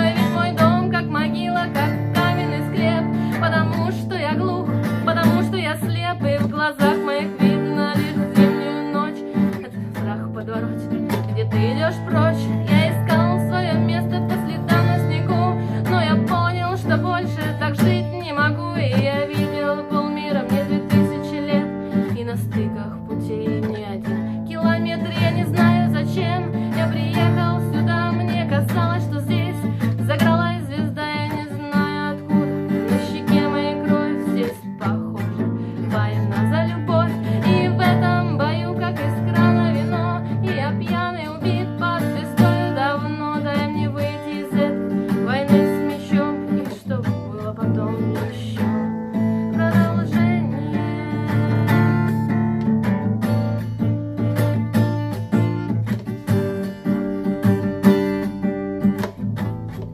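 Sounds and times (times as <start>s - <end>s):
acoustic guitar strummed and plucked: 0.0s - 59.9s.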